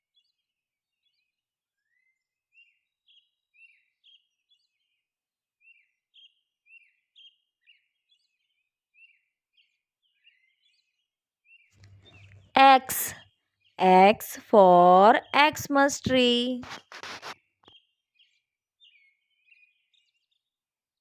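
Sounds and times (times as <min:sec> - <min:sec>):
faint bird chirping: 0:11.8 - 0:13.2.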